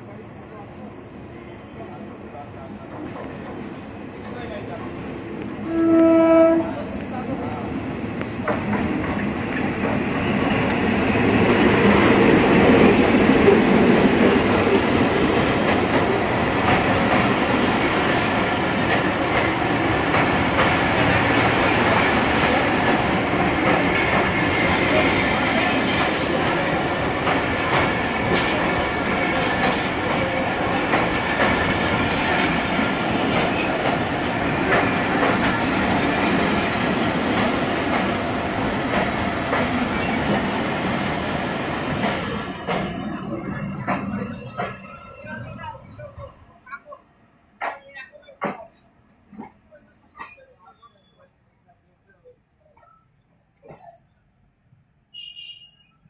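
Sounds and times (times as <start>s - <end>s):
diesel locomotive passing: 0.0s - 46.7s
train wheels clattering over rails: 8.2s - 44.9s.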